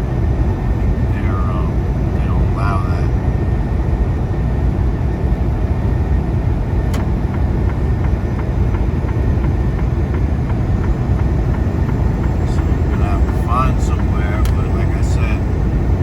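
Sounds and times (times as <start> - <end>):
truck engine and road rumble: 0.0 - 16.0
faint regular ticking: 7.0 - 16.0.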